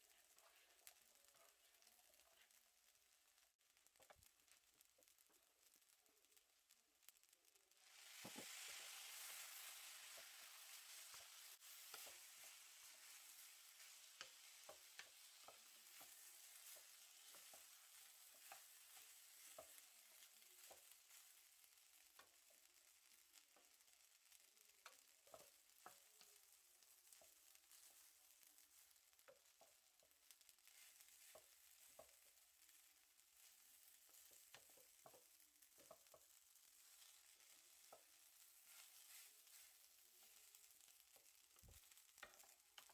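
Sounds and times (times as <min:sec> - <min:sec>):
faint sizzling of rice frying: 0:00.0 - 0:42.9
spatula scraping and tapping: 0:00.2 - 0:02.6, 0:08.1 - 0:21.5, 0:24.8 - 0:42.9.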